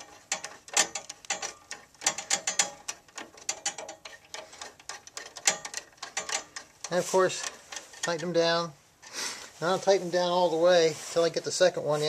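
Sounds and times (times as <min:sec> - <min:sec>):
screwdriver clicking and scraping metal: 0:00.0 - 0:08.4.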